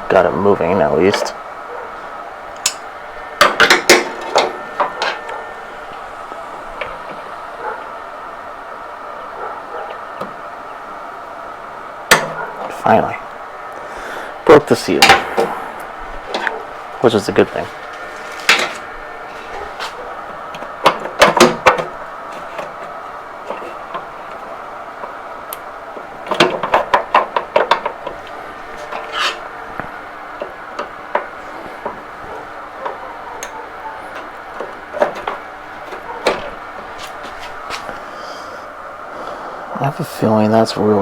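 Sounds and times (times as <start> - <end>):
faint steady hum: 0.0 - 41.0
hand tools clanking on metal: 2.6 - 6.0, 12.1 - 13.0, 14.6 - 38.0.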